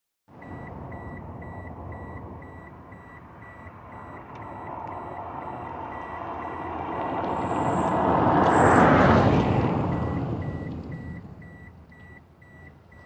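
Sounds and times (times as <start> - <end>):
short high beeps: 0.4 - 7.1
low rumble: 0.4 - 11.6.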